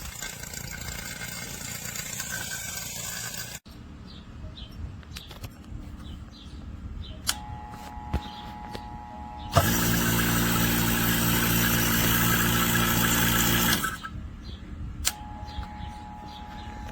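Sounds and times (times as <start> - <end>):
vacuum pump running: 0.0 - 3.6, 7.3 - 14.1
sharp clicks: 7.2 - 7.5, 15.0 - 15.7.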